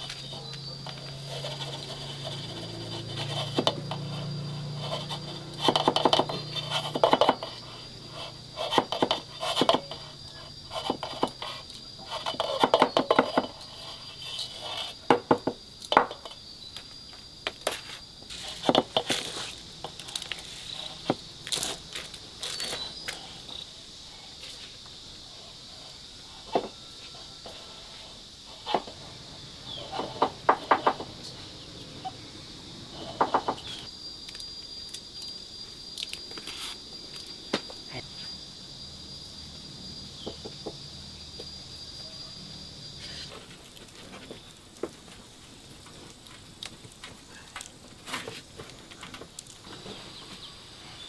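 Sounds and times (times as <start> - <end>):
high insect whine: 0.0 - 51.0
hard objects knocking and clattering: 5.6 - 7.6, 12.3 - 13.6, 15.1 - 16.4, 18.3 - 23.2, 29.7 - 31.3, 33.0 - 33.8.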